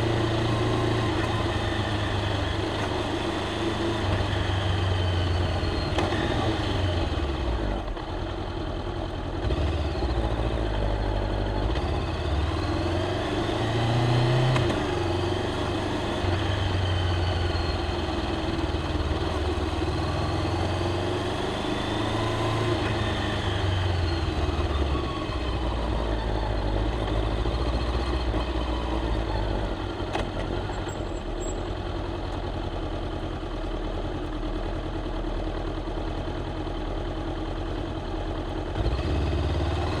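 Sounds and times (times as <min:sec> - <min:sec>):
motorcycle engine revving while riding: 0:00.0 - 0:08.0, 0:09.3 - 0:31.6, 0:38.6 - 0:40.0.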